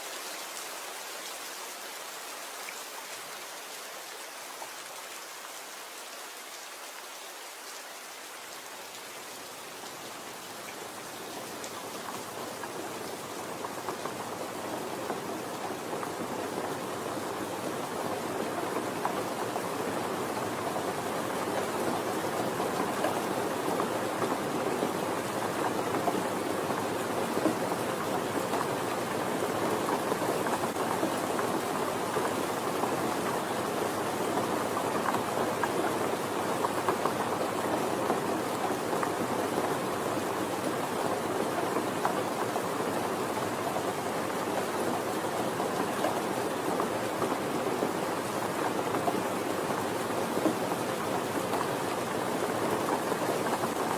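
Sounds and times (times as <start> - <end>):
rain falling: 0.0 - 53.9.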